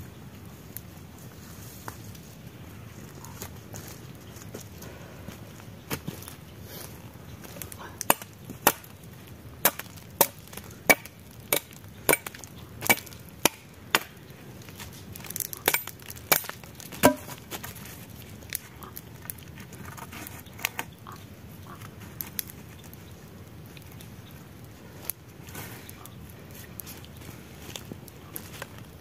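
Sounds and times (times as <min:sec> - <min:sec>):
wood being chopped: 0:08.0 - 0:08.9, 0:09.6 - 0:14.2, 0:15.4 - 0:17.4.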